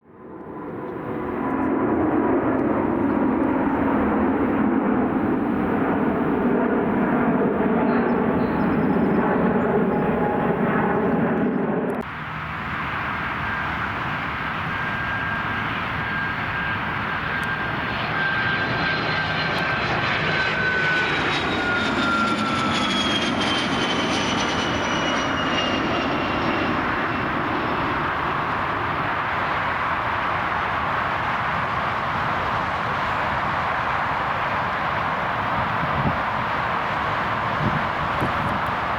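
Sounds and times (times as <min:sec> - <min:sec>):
jet airliner engines rumbling: 0:00.0 - 0:38.9
jet engine whine passing: 0:00.1 - 0:38.9.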